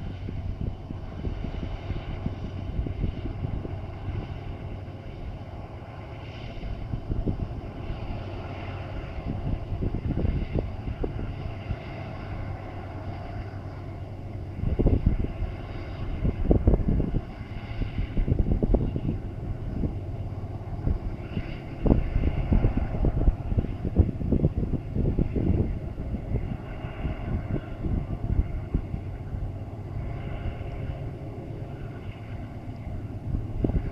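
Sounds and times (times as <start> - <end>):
freight train rumble: 8.9 - 33.9.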